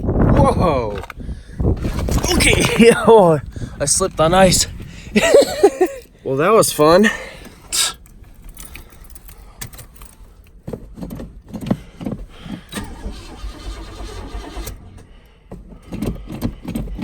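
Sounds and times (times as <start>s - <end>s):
starter cranking engine: 0.4s - 9.0s, 10.7s - 17.0s
keys jangling: 1.9s - 11.8s.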